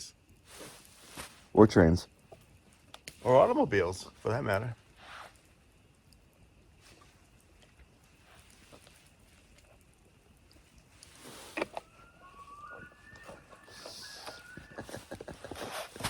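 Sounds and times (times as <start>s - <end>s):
loon wailing: 11.6s - 15.4s.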